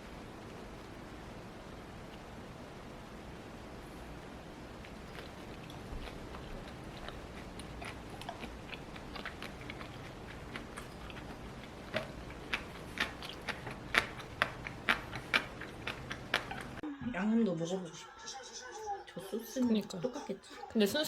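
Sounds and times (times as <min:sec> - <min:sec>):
crunchy food being chewed: 0:04.8 - 0:16.8.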